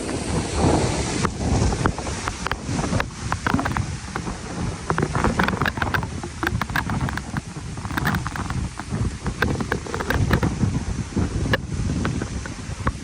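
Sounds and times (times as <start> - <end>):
short crackles: 1.2 - 10.6.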